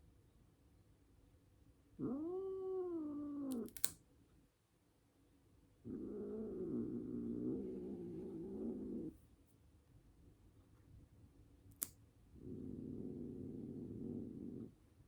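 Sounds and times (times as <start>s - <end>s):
cat growling: 2.0s - 3.9s, 5.8s - 9.2s, 12.4s - 14.8s
sharp click: 3.6s - 4.0s, 11.7s - 12.0s.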